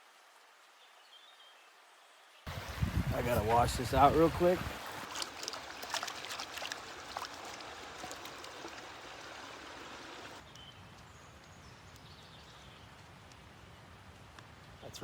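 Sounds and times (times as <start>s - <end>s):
creek water rushing: 0.0s - 10.4s
small splashes and clicks: 4.8s - 9.0s.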